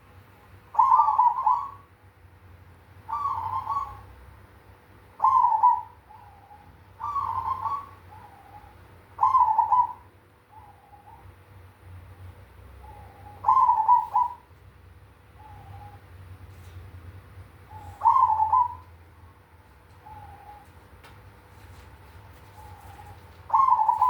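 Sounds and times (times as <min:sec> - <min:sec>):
dove cooing: 0:00.7 - 0:01.9, 0:03.1 - 0:04.2, 0:05.2 - 0:11.3, 0:12.8 - 0:14.5, 0:15.4 - 0:16.2, 0:17.6 - 0:19.0, 0:19.9 - 0:20.8, 0:22.3 - 0:24.0.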